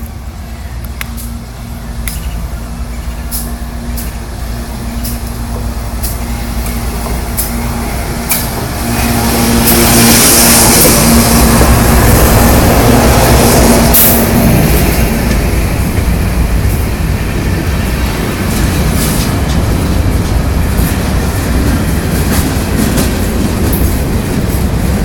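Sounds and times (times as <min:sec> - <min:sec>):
diesel locomotive engine drone: 0:00.0 - 0:25.0
passing train rushing: 0:00.0 - 0:25.0
sharp clicks: 0:02.0 - 0:02.4.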